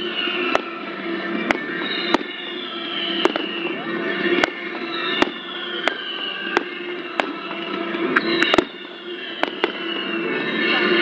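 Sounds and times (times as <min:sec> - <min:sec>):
fireworks bangs: 0:00.4 - 0:00.8, 0:01.4 - 0:07.5, 0:08.4 - 0:10.0
whistles of rising shells: 0:01.5 - 0:07.4, 0:08.1 - 0:10.5.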